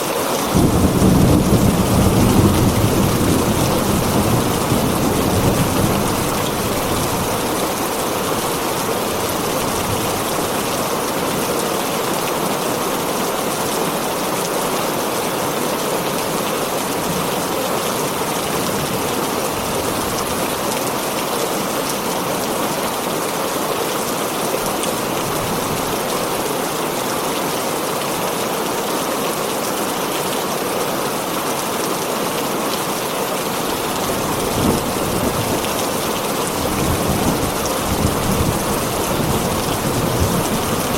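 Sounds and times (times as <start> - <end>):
heavy rain on a tin roof: 0.0 - 40.9
low rumble of thunder: 0.5 - 10.7, 33.7 - 40.9.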